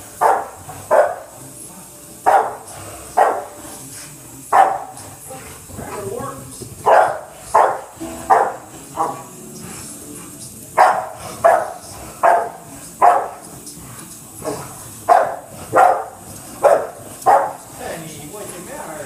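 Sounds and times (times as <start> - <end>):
dog barking: 0.2 - 1.4, 2.2 - 3.6, 4.5 - 5.0, 6.8 - 9.4, 10.7 - 13.5, 14.4 - 17.7.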